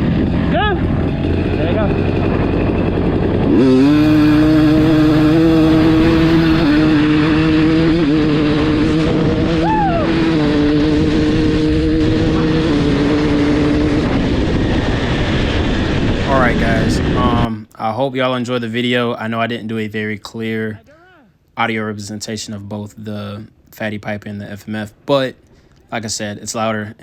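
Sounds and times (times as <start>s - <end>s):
dirt bike engine revving: 0.0s - 17.5s.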